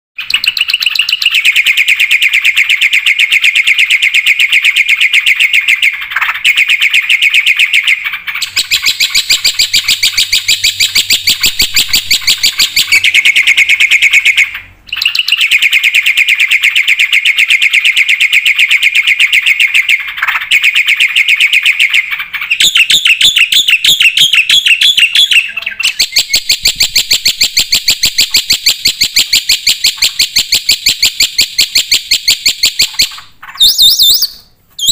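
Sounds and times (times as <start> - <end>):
myna singing shrill chattering notes: 5.1 - 17.1, 24.4 - 31.2, 32.7 - 34.9.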